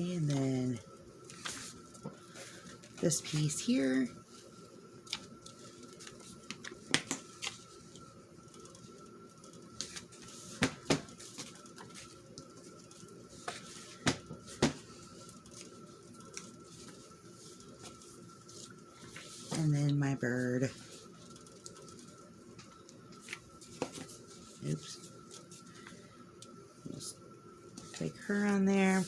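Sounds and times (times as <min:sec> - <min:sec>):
faint steady whine: 0:00.0 - 0:29.0
paper taps and rustles: 0:05.0 - 0:07.6, 0:09.7 - 0:12.7, 0:13.4 - 0:14.9, 0:21.6 - 0:24.2.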